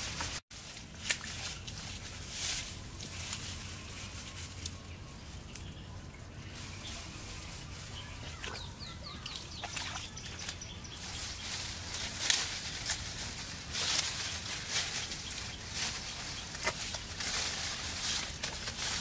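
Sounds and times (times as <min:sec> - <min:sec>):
bird chirping: 0:03.6 - 0:12.0
hands splashing in muddy water: 0:09.2 - 0:10.6.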